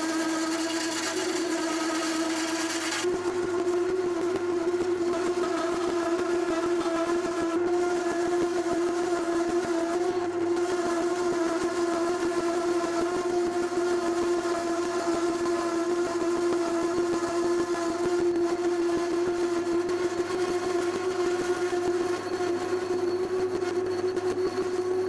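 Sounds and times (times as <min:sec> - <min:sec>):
lathe tool cutting metal with chatter: 0:00.0 - 0:10.0.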